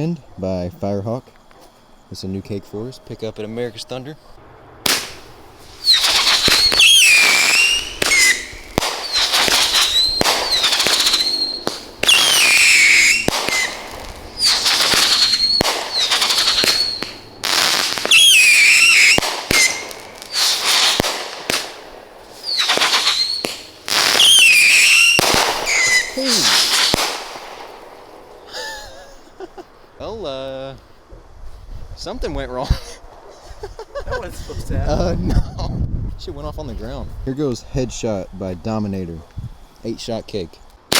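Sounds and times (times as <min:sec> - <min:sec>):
whistling firework shots: 0:04.8 - 0:28.7
firework cracks and crackle: 0:04.8 - 0:28.9.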